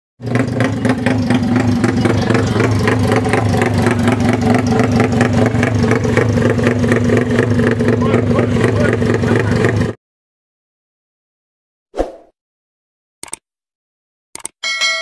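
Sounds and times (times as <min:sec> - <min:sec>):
motorcycle engine running: 0:00.2 - 0:10.0.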